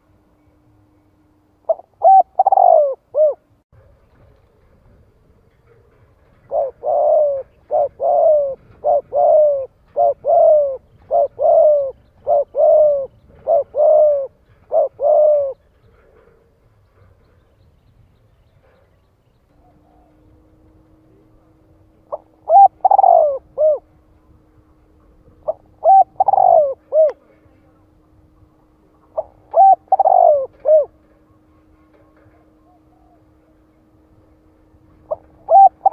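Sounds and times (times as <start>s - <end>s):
faint steady hum: 0.0s - 35.9s
dove cooing: 1.6s - 3.5s, 5.7s - 16.6s, 19.5s - 27.5s, 28.8s - 33.7s, 35.0s - 35.9s.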